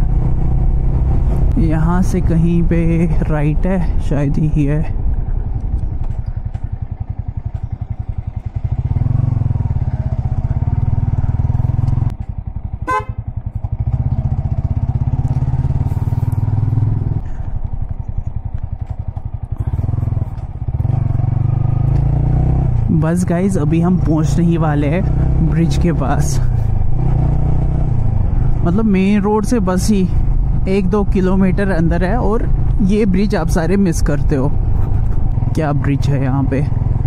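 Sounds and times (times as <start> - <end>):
motorcycle engine revving: 0.0 - 3.7, 4.9 - 37.0
short horn beep: 12.9 - 13.2.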